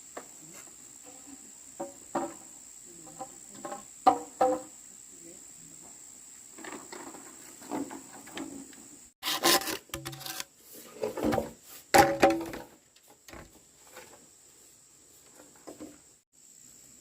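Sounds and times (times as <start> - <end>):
wood knocking and scraping on wood: 0.2 - 2.5, 3.1 - 4.7, 6.6 - 14.2, 15.2 - 16.1.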